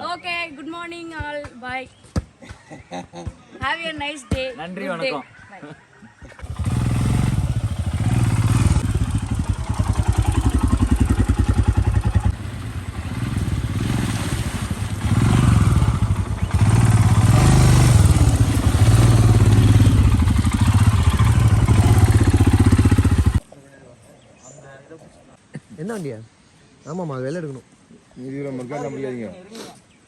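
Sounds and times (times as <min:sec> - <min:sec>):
motorcycle engine revving: 0:06.4 - 0:23.4.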